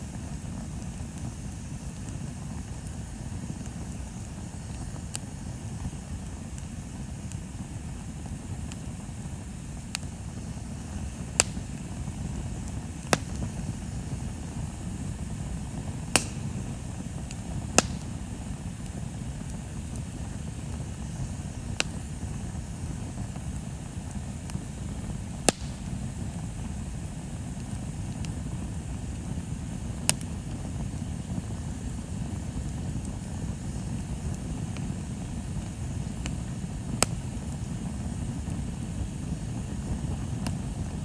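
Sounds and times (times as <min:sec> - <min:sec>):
bonfire rumbling: 0:00.0 - 0:41.0
wood popping and crackling: 0:09.9 - 0:26.2.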